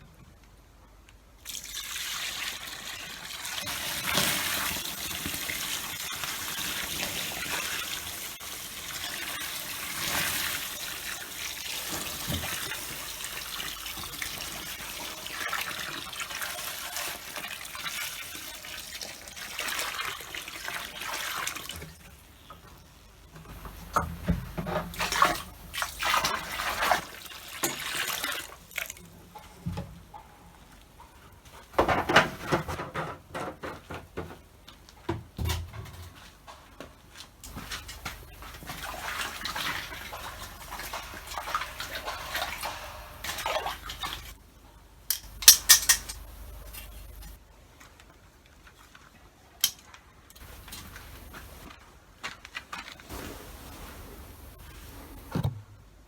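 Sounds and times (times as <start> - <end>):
water pouring: 1.4 - 22.8, 23.4 - 29.8, 37.5 - 44.4
knocks and clatters: 31.0 - 36.7.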